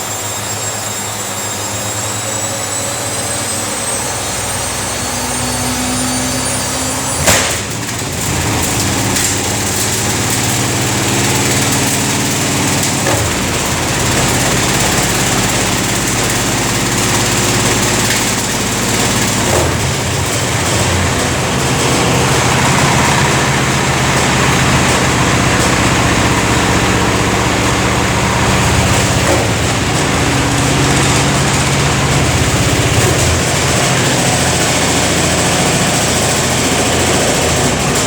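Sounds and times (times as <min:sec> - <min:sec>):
washing machine spinning: 0:00.0 - 0:38.0.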